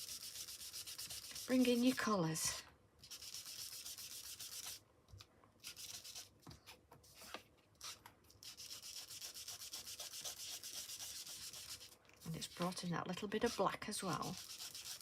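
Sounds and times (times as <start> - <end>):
tool rubbing on cardstock: 0.0 - 2.0, 3.0 - 4.8, 5.6 - 6.3, 7.8 - 15.0.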